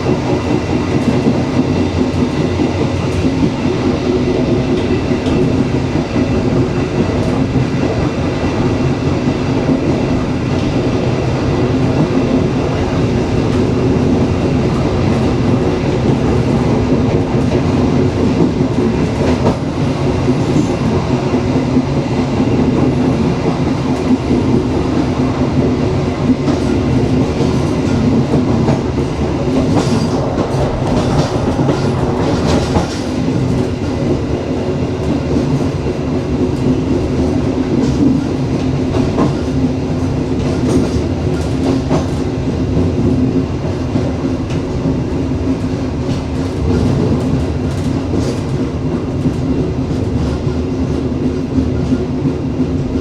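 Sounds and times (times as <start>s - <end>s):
train clicking: 0.0s - 53.0s
train wheels rumbling on rails: 0.0s - 53.0s.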